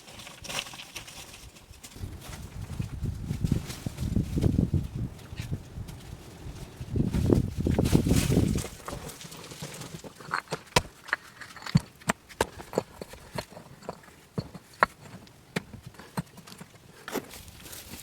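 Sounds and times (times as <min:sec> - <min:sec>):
sharp irregular clicks and knocks: 0:08.7 - 0:17.3.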